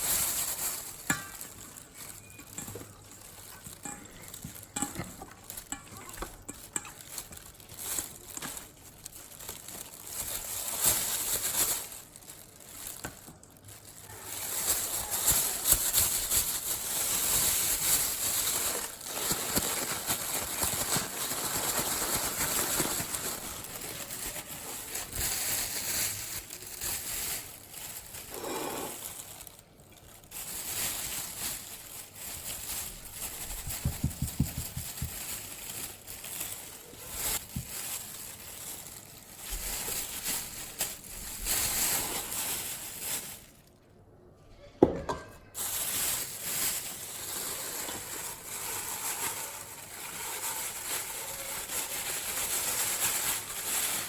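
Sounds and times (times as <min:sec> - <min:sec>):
chicken frying in hot oil: 0:14.0 - 0:14.3.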